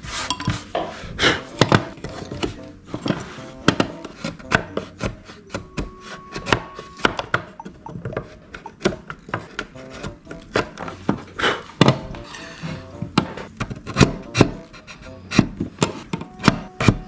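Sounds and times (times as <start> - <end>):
quiet background music: 0.0 - 17.0.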